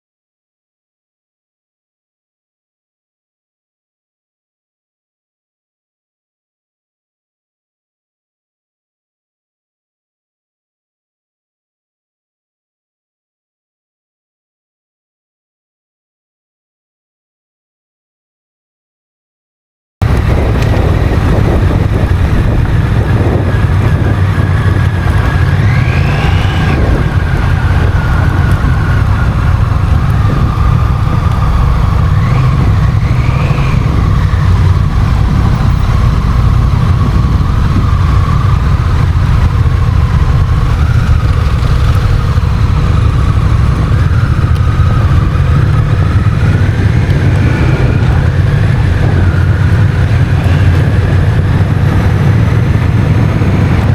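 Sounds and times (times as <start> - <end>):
motorcycle engine running: 20.0 - 53.9
wind rumble on microphone: 20.0 - 53.9.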